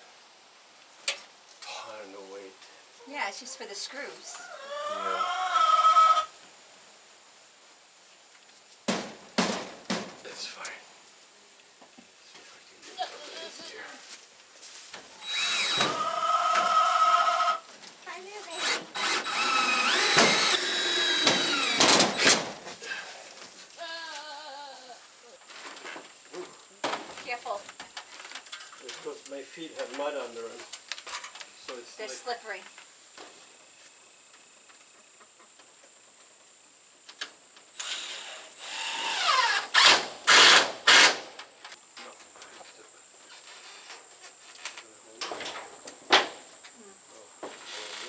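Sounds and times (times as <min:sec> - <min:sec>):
cordless drill driving screws: 0:15.2 - 0:16.6, 0:18.5 - 0:22.5, 0:37.8 - 0:41.2.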